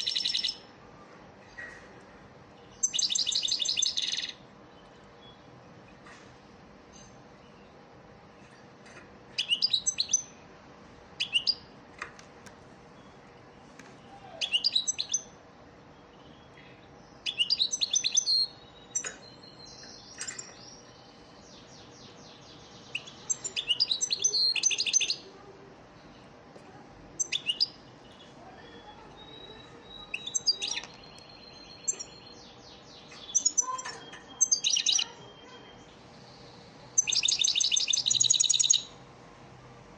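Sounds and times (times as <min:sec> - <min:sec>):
goldfinch twittering song: 0:02.8 - 0:04.4, 0:09.4 - 0:10.3, 0:11.2 - 0:11.6, 0:14.4 - 0:15.3, 0:17.2 - 0:25.2, 0:27.2 - 0:35.9, 0:37.0 - 0:38.9.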